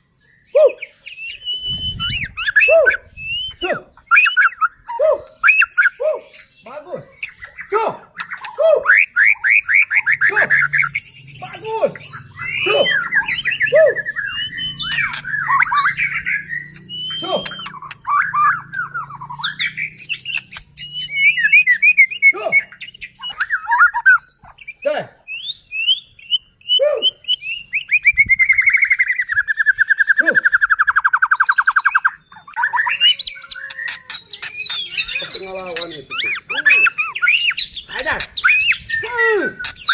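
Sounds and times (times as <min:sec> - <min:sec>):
bird singing whistled phrases: 0:00.3 - 0:39.9
fast buzzing bird trill: 0:08.3 - 0:22.8.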